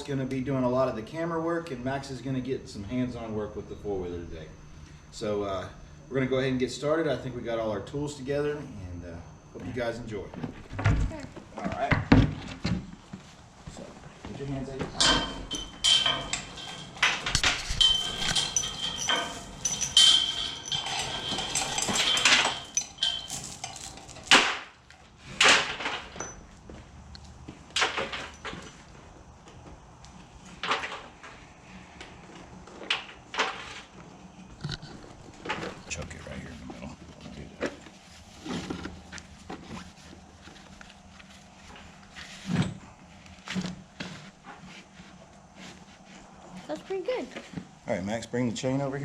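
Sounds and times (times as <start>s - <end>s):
knocks and light clatter: 9.6s - 24.7s
clinks of hand tools and metal: 14.8s - 24.7s, 25.4s - 26.5s, 27.7s - 28.9s.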